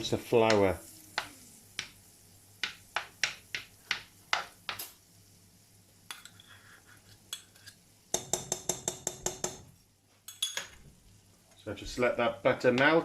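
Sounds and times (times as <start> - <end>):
utensils clinking against pan: 6.1 - 9.6, 10.3 - 10.8.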